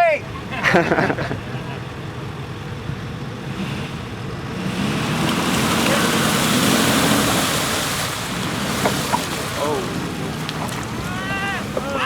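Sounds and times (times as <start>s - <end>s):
truck engine running low: 0.0s - 12.0s
rushing splash of water and mud: 4.5s - 12.0s.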